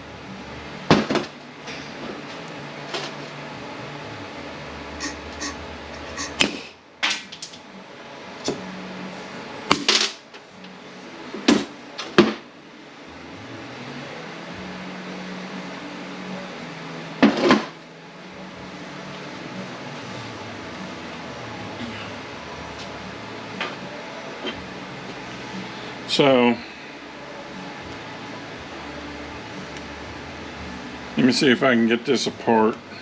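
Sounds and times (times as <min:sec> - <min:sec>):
low steady hum: 0:00.0 - 0:33.0
tools and metal parts clinking: 0:05.0 - 0:06.4.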